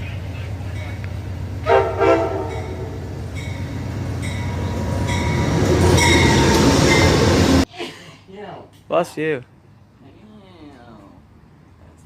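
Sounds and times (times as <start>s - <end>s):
passenger train rumbling past: 0.0s - 7.7s.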